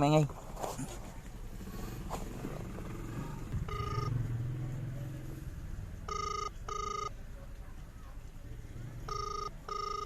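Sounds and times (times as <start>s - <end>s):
telephone ringback tone: 3.7s - 4.2s, 6.1s - 7.2s, 9.1s - 10.0s.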